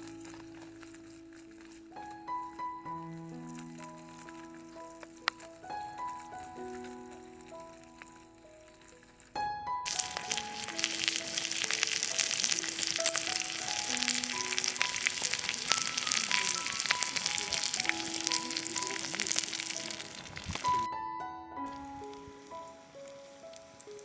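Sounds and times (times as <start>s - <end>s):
soft background music: 0.0s - 24.0s
food sizzling on a griddle: 9.9s - 20.9s.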